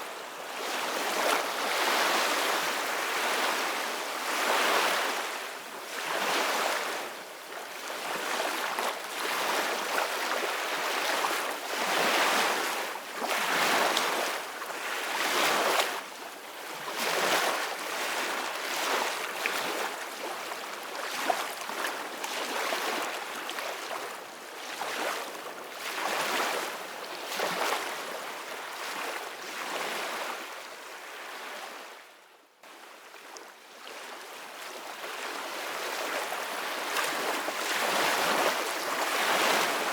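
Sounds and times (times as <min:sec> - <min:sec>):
ocean waves breaking on shore: 0:34.0 - 0:39.9.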